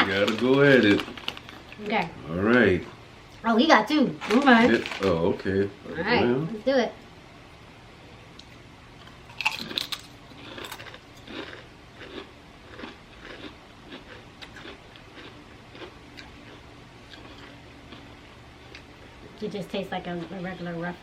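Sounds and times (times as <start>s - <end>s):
potato chips crunching: 0.0s - 1.8s, 9.3s - 18.9s.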